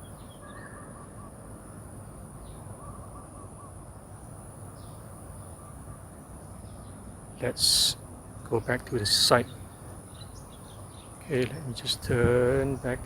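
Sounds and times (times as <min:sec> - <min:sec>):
faint bird calls: 0:00.0 - 0:11.9
outdoor background noise: 0:00.0 - 0:13.0.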